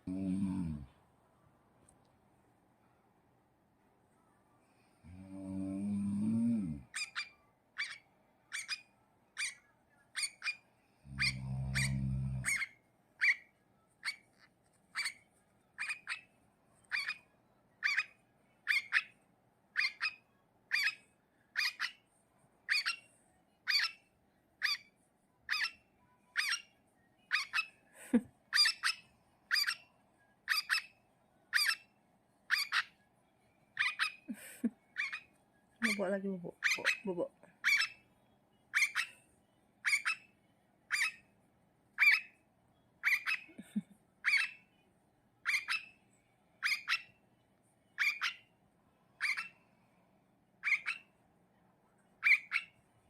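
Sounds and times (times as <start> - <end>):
person snoring: 0.0 - 0.9, 5.0 - 6.8, 11.0 - 12.6.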